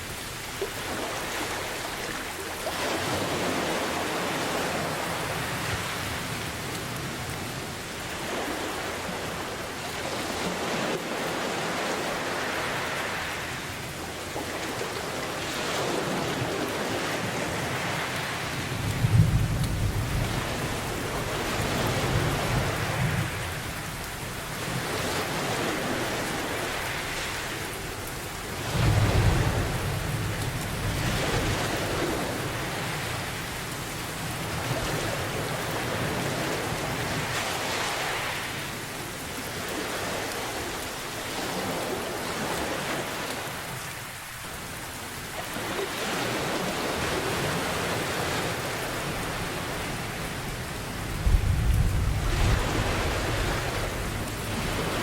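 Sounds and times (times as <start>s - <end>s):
rushing like waves: 0.0s - 55.0s
steady rain: 0.0s - 55.0s
thunder rolling: 51.2s - 54.2s.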